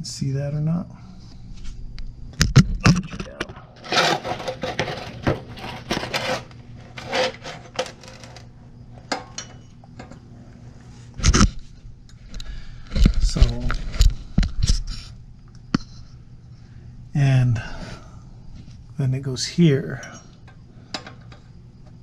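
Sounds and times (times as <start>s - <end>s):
metal scraping: 3.7s - 8.5s
metal exhaust pipes clinking: 9.1s - 10.2s.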